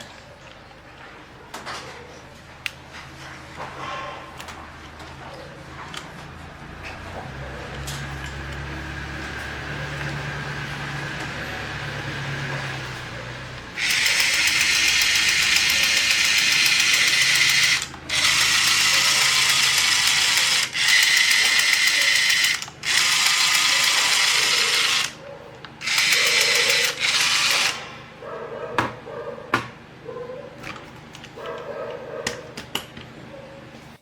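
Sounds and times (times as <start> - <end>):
electric motor and gears whirring: 5.9 - 28.1.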